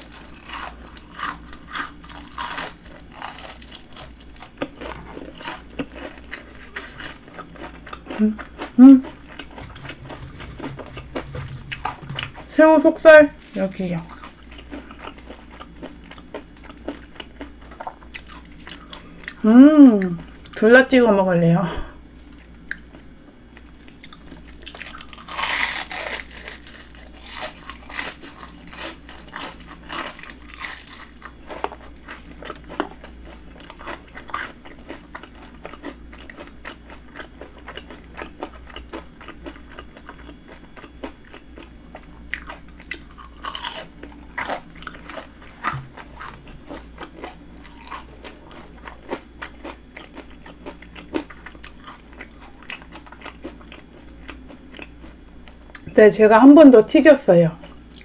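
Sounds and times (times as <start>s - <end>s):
chewing: 0.0s - 12.5s, 13.4s - 20.6s, 22.2s - 55.8s
crunchy bites into fried food: 23.9s - 41.7s, 42.3s - 55.2s.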